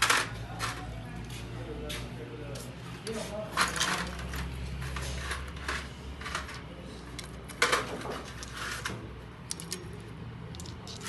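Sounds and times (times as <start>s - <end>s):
metallic clinks and knocks: 10.5s - 11.0s.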